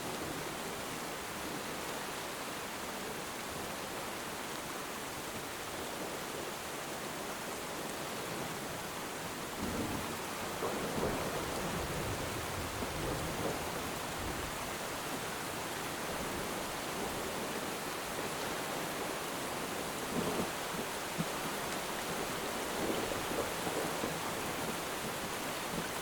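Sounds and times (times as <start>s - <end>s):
steady rain falling: 0.0s - 26.0s
low thunder rumble: 9.6s - 14.7s.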